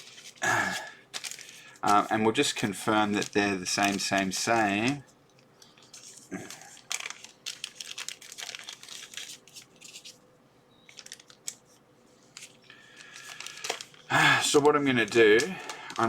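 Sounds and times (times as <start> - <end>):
plastic packaging crinkling: 0.0 - 10.2, 10.8 - 16.0.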